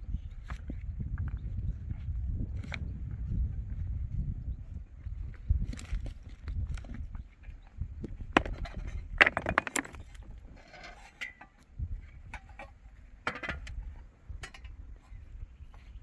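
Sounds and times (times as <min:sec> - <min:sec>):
sharp knocks and clatters: 0:08.3 - 0:10.3.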